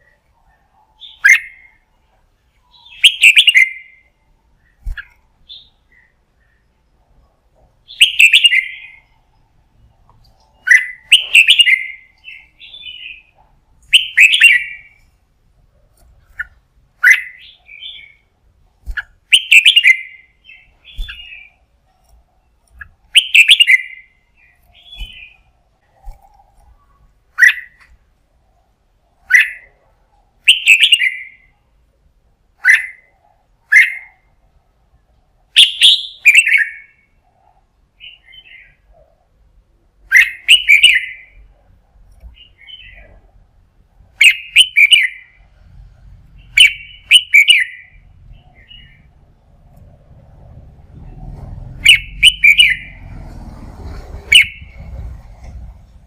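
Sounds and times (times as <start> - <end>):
bulbul singing: 0.0 - 6.8, 7.8 - 15.1, 16.2 - 27.9, 30.4 - 31.6, 35.6 - 37.1, 40.1 - 41.5, 44.2 - 45.5, 46.4 - 49.2, 51.8 - 53.1, 54.3 - 55.0.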